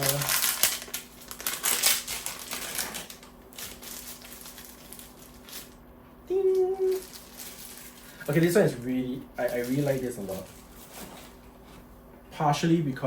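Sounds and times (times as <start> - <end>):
packaging crinkling with clicks: 0.0 - 5.8.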